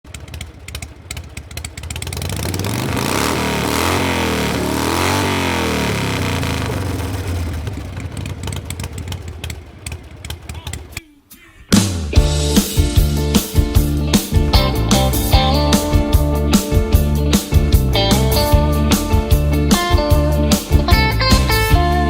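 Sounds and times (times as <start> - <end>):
motorcycle engine passing by: 0.0 - 11.0, 17.4 - 22.0.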